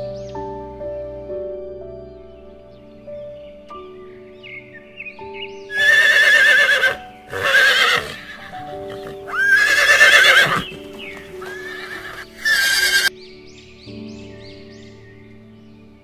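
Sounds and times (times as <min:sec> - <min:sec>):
soft background music: 0:00.0 - 0:16.0
horses whinnying: 0:05.7 - 0:13.1.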